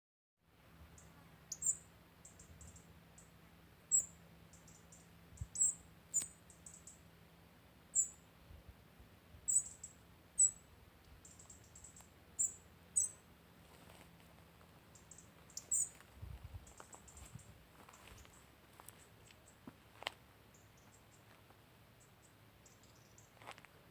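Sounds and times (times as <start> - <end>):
faint low hum: 0.5 - 23.9
short high-pitched chirps: 5.4 - 7.0, 9.5 - 10.6.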